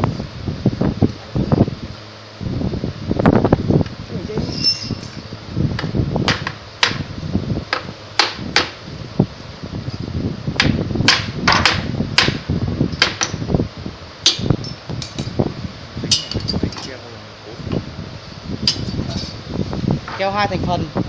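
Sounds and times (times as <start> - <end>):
steady hum: 0.0 - 21.0
knocks and clicks of hand work: 5.8 - 7.0, 10.6 - 12.4, 13.0 - 13.4.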